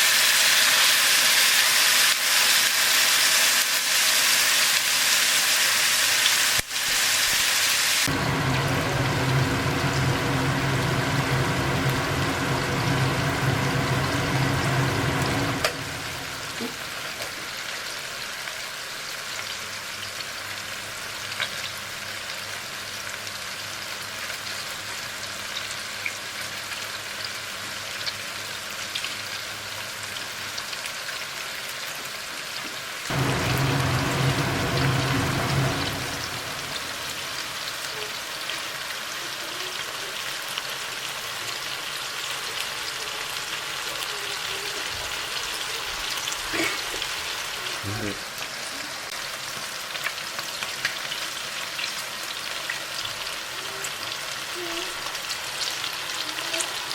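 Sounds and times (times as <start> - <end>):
food sizzling in hot oil: 0.0 - 56.9
low hum: 8.1 - 16.9, 33.1 - 37.8
oil crackling and popping: 48.0 - 53.2.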